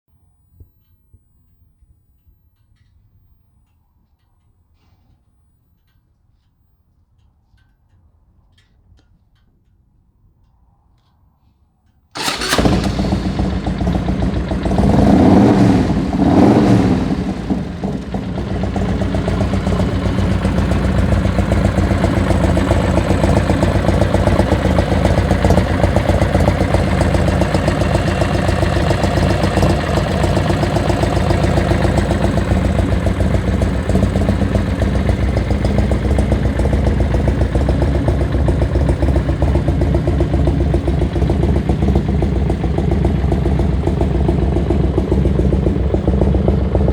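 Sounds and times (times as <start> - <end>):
motorcycle engine revving and idling: 12.2 - 46.9.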